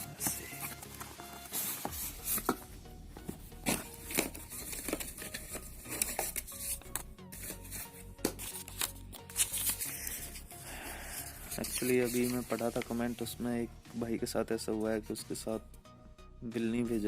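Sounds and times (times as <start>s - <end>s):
quiet background music: 0.0s - 17.0s
packaging tearing and crinkling: 3.7s - 10.2s.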